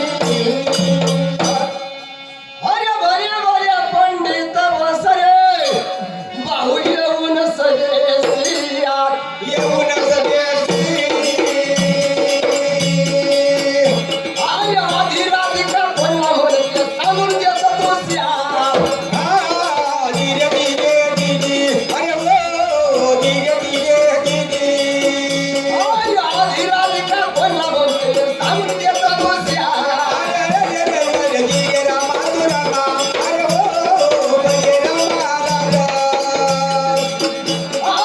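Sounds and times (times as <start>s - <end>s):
regular drum beat: 0.0s - 1.9s, 9.6s - 38.0s
jingling rattle percussion: 0.0s - 2.2s, 5.6s - 6.1s, 8.2s - 8.8s, 9.6s - 38.0s.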